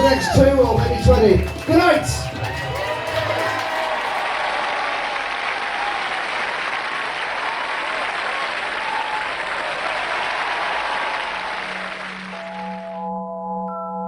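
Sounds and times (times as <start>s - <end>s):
faint crowd voices: 0.0s - 4.3s
audience applauding: 0.0s - 13.0s.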